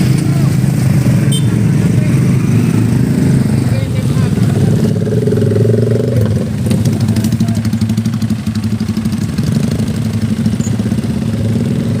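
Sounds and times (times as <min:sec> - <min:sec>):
motorcycle idling loudly: 0:02.9 - 0:12.0.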